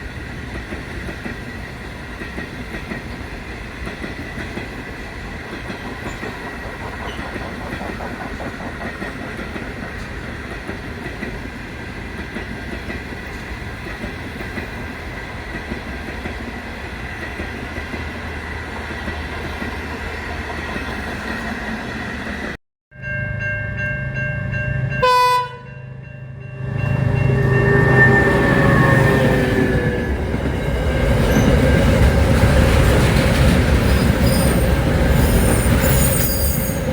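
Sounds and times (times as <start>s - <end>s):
train engine: 0.0s - 36.9s
train rolling on rails: 0.0s - 36.9s
train horn blast: 25.0s - 26.0s.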